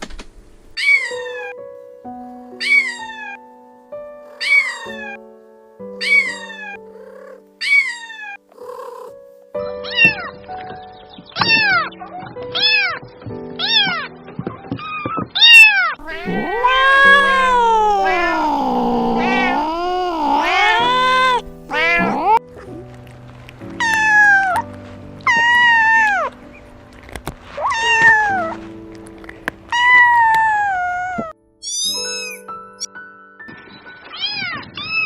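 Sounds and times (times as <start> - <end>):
background music with held notes: 0.0 - 35.0
cat meowing: 0.8 - 1.6, 2.6 - 3.4, 4.4 - 5.2, 6.0 - 9.1, 9.8 - 10.4, 11.4 - 11.9, 12.6 - 13.0, 13.6 - 14.1, 14.9 - 22.4, 23.8 - 26.4, 27.6 - 28.6, 29.7 - 32.4.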